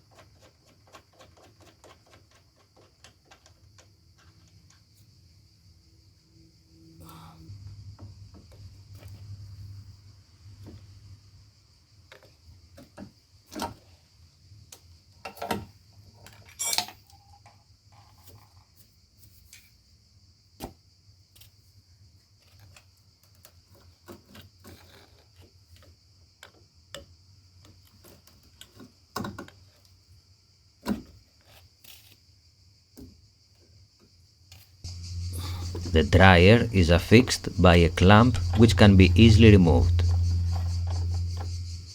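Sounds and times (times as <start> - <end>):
faint high-pitched tone: 34.9 - 41.5.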